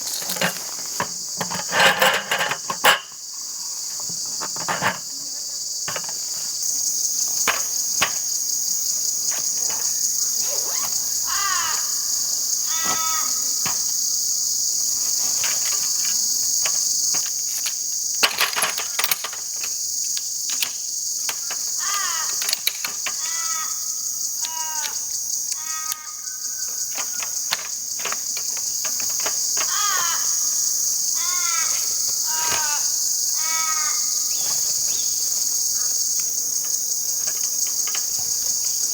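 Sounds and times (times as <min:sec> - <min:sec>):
high-pitched insect chorus: 0:00.0 - 0:38.9
light clicks and knocks: 0:15.4 - 0:23.4
bird chirping: 0:33.9 - 0:36.1.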